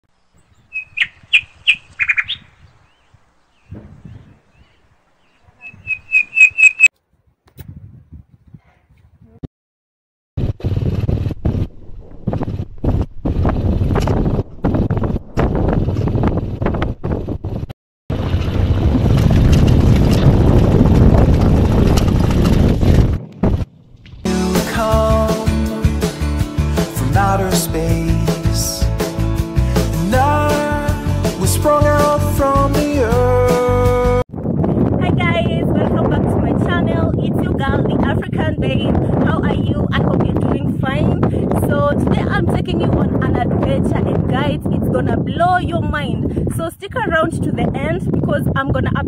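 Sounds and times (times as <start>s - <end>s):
wind rushing on microphone: 0.4s - 9.5s, 10.4s - 24.3s, 34.3s - 49.0s
bird calling sharp high notes: 0.7s - 3.0s, 5.2s - 6.9s
motorbike running: 10.4s - 24.3s
music: 24.3s - 34.2s.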